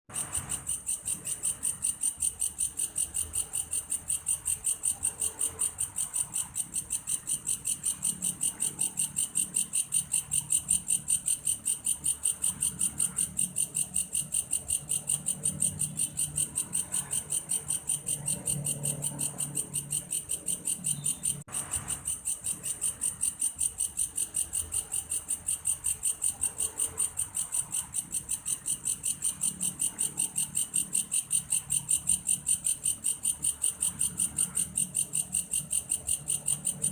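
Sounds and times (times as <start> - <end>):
grasshopper pulsing song: 0.1 - 36.9.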